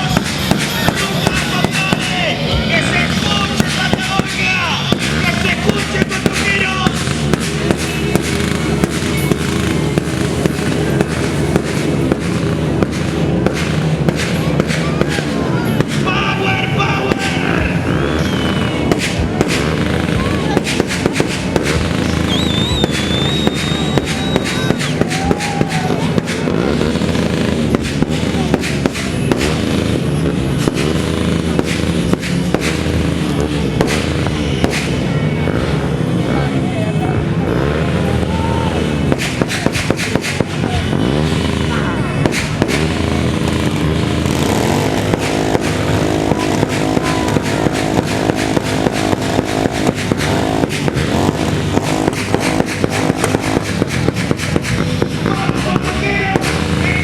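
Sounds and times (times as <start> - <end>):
fireworks popping and banging: 0.0 - 36.6, 37.3 - 57.0
sharp cracks and pops: 20.6 - 27.1, 39.1 - 40.6, 42.3 - 55.3.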